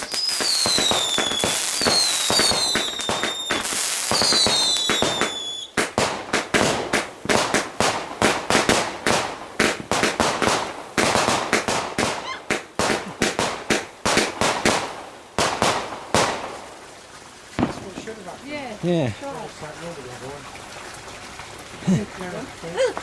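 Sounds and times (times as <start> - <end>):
whistling firework: 0.0 - 5.9
firework bangs and cracks: 0.0 - 16.7, 17.5 - 18.3.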